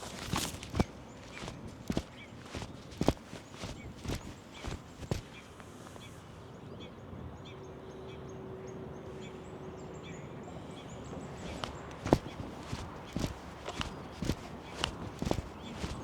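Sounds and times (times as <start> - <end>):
birds chirping: 0.0 - 6.2, 10.0 - 16.0.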